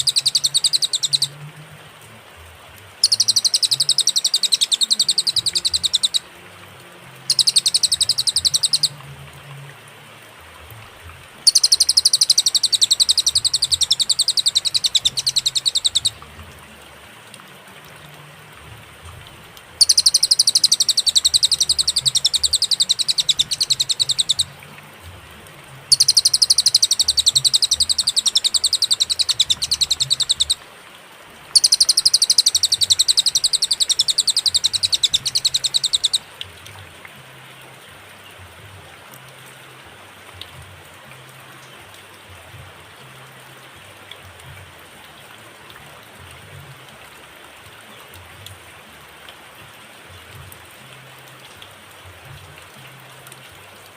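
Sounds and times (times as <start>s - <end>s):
bird trilling rapidly: 0.0s - 1.4s, 3.0s - 6.3s, 7.3s - 8.9s, 11.5s - 16.2s, 19.8s - 24.5s, 25.9s - 30.6s, 31.6s - 36.2s.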